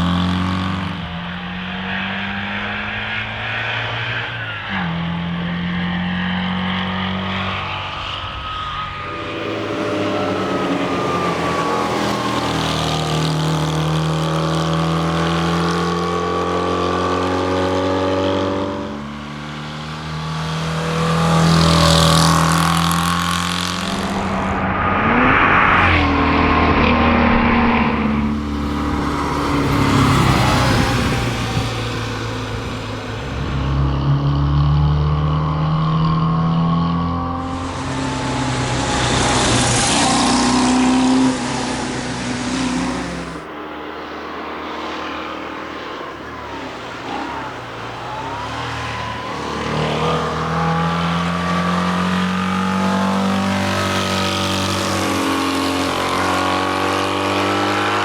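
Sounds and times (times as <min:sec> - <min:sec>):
car engine revving under load: 0:00.0 - 0:58.0.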